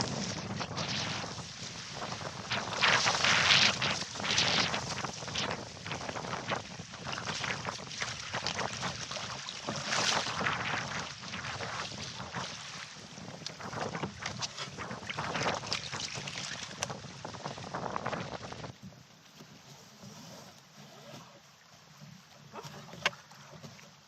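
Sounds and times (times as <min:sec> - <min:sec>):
wind buffeting the microphone: 0:00.0 - 0:18.9
water splashing around a canoe: 0:00.0 - 0:24.0.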